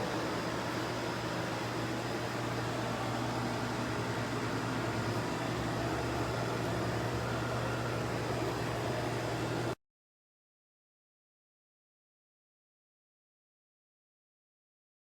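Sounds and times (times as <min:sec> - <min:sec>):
low mechanical hum: 0:00.0 - 0:09.8.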